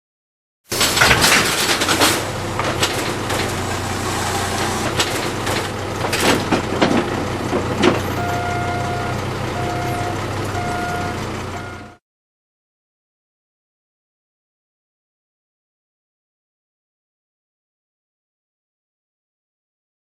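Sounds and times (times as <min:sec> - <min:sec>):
panels knocking and clattering: 0:00.7 - 0:08.1
machine humming: 0:01.8 - 0:06.1
warning beeper: 0:08.1 - 0:12.0.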